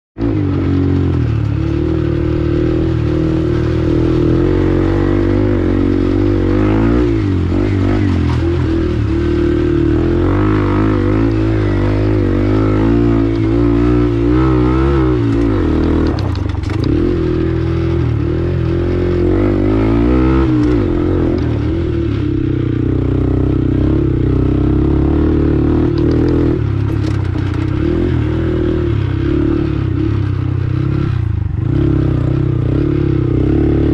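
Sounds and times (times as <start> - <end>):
motorcycle engine revving: 0.2 - 33.9.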